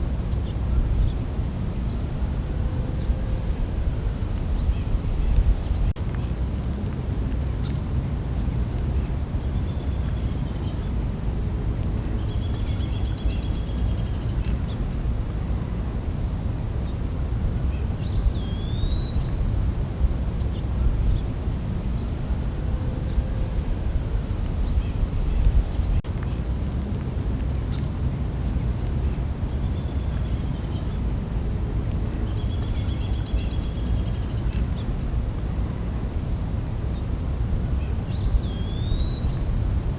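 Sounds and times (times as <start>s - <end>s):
steady low rumble: 0.0s - 7.0s, 19.1s - 26.7s
crickets chirping: 0.0s - 39.9s.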